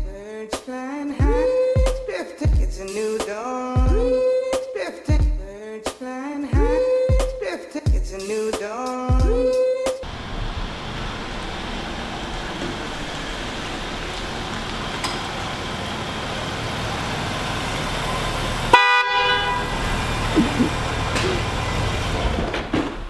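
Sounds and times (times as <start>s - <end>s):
vehicle running noise: 10.0s - 23.0s
short horn toot: 18.7s - 20.8s.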